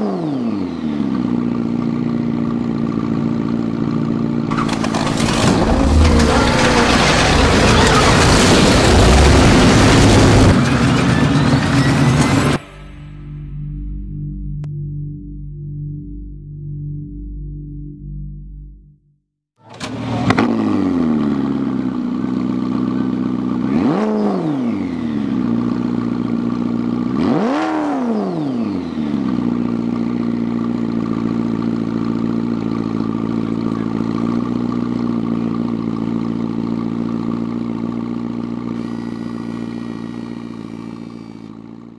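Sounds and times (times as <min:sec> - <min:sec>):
car engine starting and revving: 0:04.4 - 0:12.6, 0:19.7 - 0:32.4.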